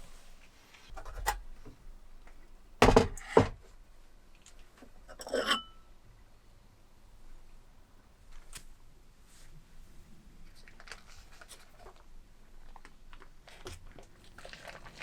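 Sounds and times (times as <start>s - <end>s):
loud knocks: 2.8s - 3.6s
metal utensils clinking: 5.1s - 5.8s.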